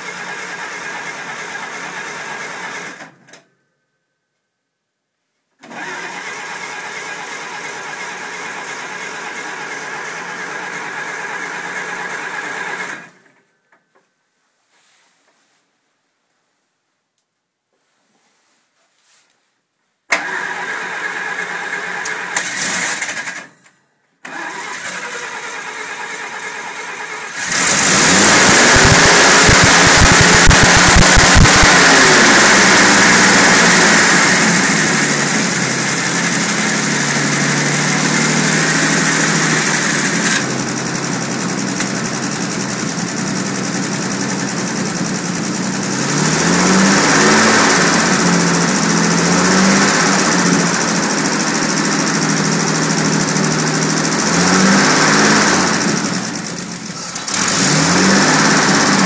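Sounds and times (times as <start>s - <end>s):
starter motor cranking: 20.2s - 23.5s, 24.2s - 42.6s, 43.2s - 59.0s
car engine running and revving: 27.3s - 59.0s.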